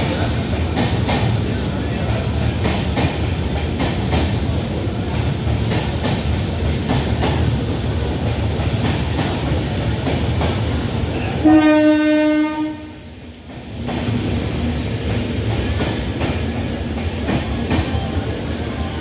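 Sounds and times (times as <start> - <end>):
train rumbling: 0.0 - 19.0
locomotive horn blast: 11.4 - 13.0.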